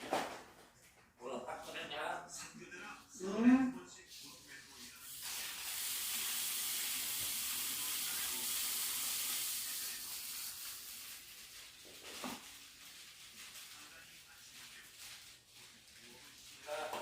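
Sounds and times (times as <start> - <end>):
food sizzling in a frying pan: 5.0 - 13.2.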